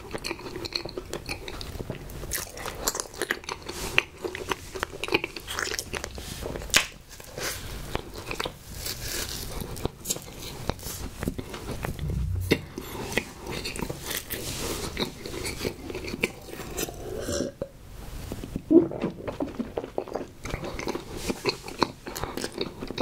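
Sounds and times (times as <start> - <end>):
person chewing snack cake: 0.0 - 10.4, 18.5 - 23.0.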